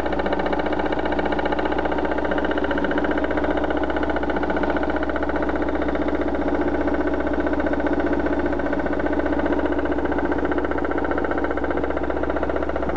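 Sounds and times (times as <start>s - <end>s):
engine running with pulsing noise: 0.0s - 12.9s.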